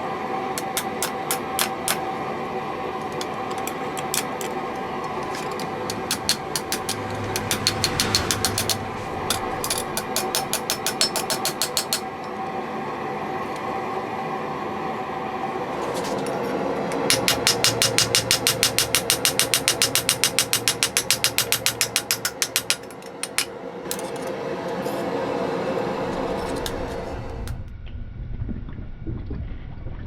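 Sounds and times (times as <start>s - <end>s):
steady hum: 0.0s - 28.6s
hammer blows on steel: 5.9s - 12.1s.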